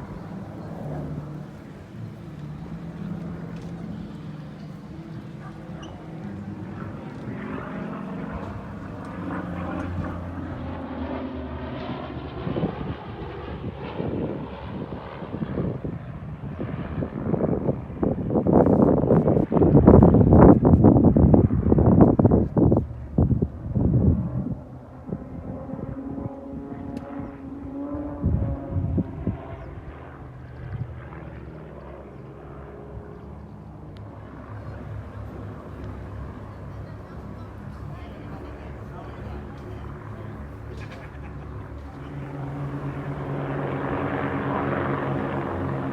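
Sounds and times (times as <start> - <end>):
propeller aircraft engine droning: 0.0 - 45.9
wind buffeting microphone: 12.2 - 40.5.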